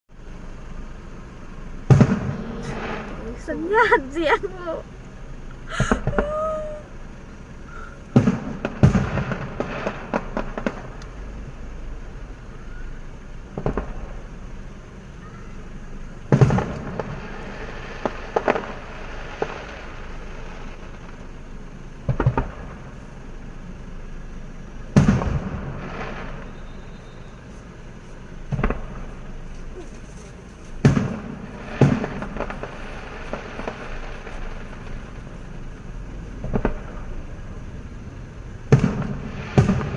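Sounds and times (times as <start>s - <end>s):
firework crackle: 0.2s - 39.9s
firework bangs: 1.0s - 4.9s, 5.7s - 6.8s, 7.7s - 12.4s, 13.4s - 14.7s, 16.2s - 23.0s, 24.9s - 27.8s, 28.4s - 37.6s, 38.5s - 39.9s.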